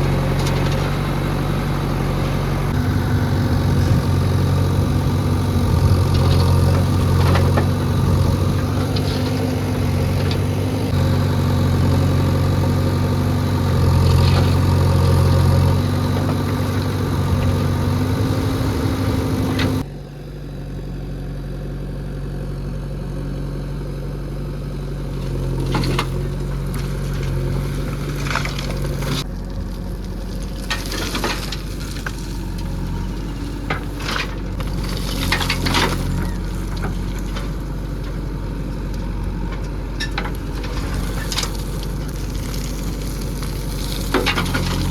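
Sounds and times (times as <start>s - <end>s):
diesel engine running: 0.0s - 44.9s
scrapes: 25.6s - 38.2s, 39.5s - 44.9s.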